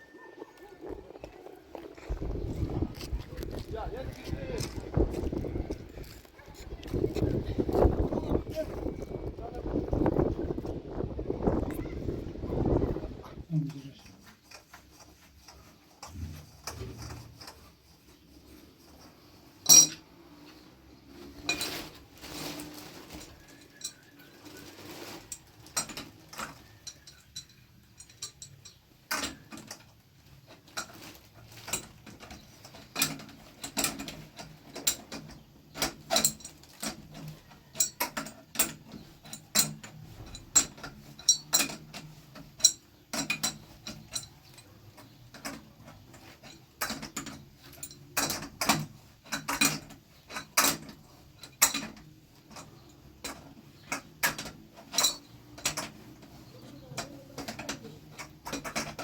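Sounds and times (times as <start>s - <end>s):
hand tools tapping on metal: 19.0s - 20.1s, 25.7s - 59.0s.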